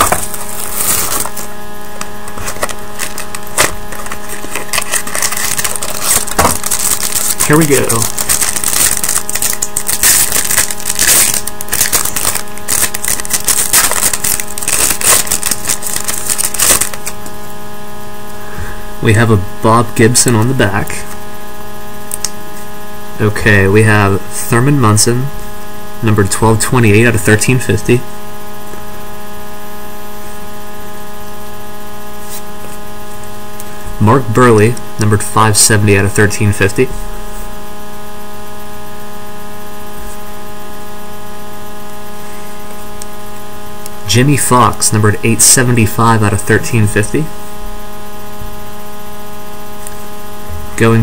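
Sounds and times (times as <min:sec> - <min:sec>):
card pack wrapper tearing and crinkling: 0:00.0 - 0:01.5, 0:02.3 - 0:17.2
electrical hum: 0:00.0 - 0:51.0.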